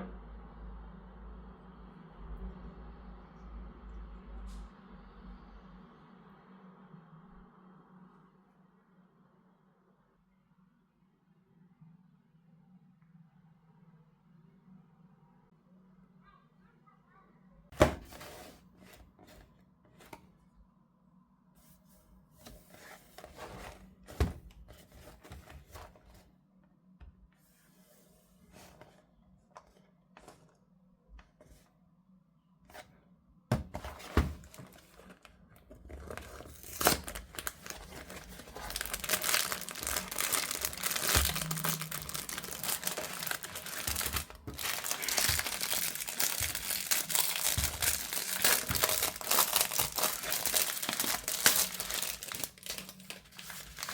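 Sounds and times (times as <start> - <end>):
packaging torn and crumpled: 34.4 - 53.9.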